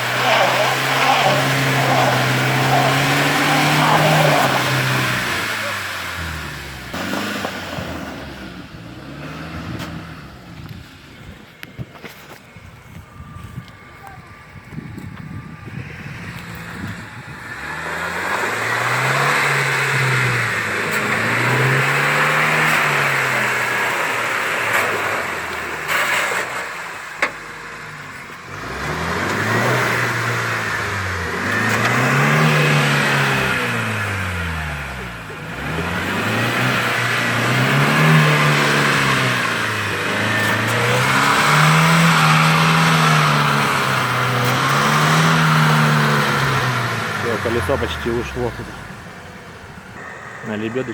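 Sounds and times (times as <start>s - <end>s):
vehicle engine revving: 0.0s - 50.9s.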